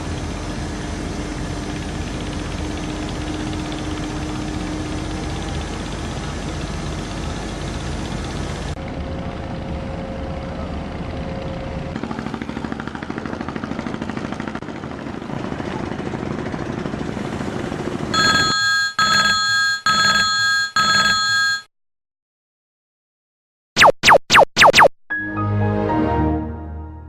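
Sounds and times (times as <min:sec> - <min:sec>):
rhythmic machinery noise: 0:00.0 - 0:09.0
telephone-style ringing tone: 0:18.2 - 0:21.7.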